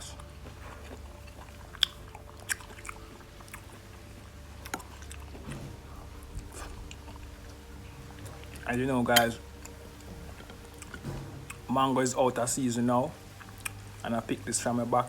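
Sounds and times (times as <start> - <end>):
mouth clicks and smacks: 0.0 - 3.9, 13.4 - 13.9
person chewing fruit: 0.0 - 14.3
faint low hum: 0.0 - 15.0.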